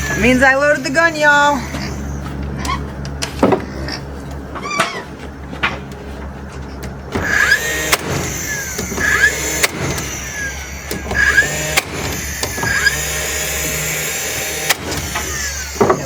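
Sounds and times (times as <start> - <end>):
low motor hum: 0.0 - 16.0
staple gun firing: 7.2 - 10.2.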